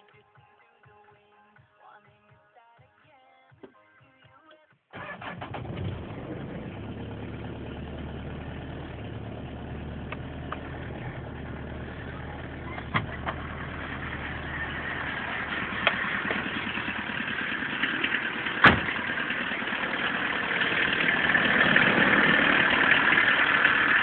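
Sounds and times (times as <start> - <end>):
diesel engine starting and idling: 5.0 - 24.0.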